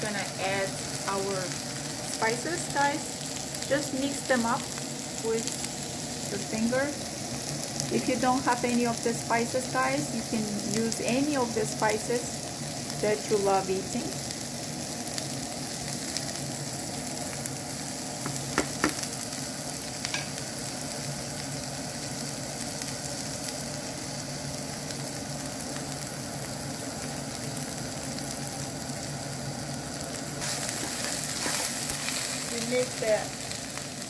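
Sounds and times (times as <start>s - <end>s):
food sizzling in a frying pan: 0.0s - 34.0s
wooden spoon stirring a pan: 30.4s - 32.3s.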